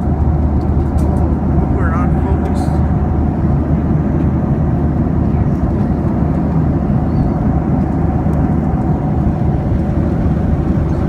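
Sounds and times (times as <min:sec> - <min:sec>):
jet engine cabin rumble: 0:00.0 - 0:11.0.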